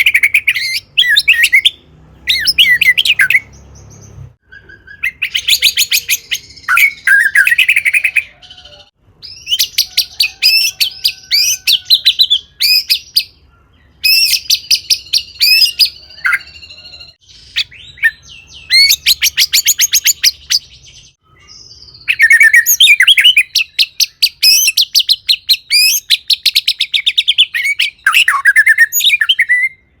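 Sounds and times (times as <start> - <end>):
songbird singing rattling whistles: 9.2 - 13.3, 14.0 - 29.7.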